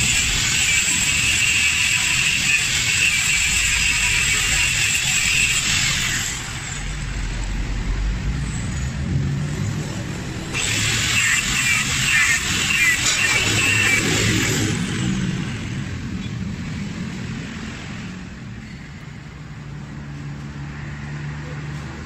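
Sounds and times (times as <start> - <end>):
power grinder on metal: 0.0 - 7.2, 10.4 - 15.4.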